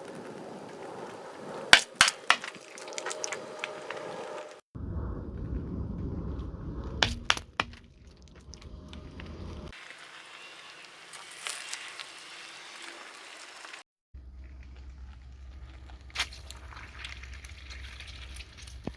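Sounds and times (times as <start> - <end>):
small crackles: 0.0 - 18.9
sharp cracks: 1.7 - 3.8, 6.9 - 9.0
tyre crushing brittle objects: 1.8 - 3.8, 7.0 - 8.6, 14.3 - 18.9
low engine rumble: 4.8 - 9.7.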